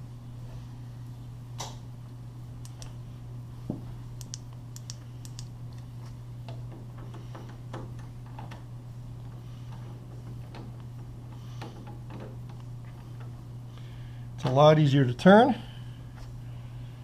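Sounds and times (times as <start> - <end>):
steady low hum: 0.0 - 17.0
screwdriver clicking and ticking: 4.2 - 5.5.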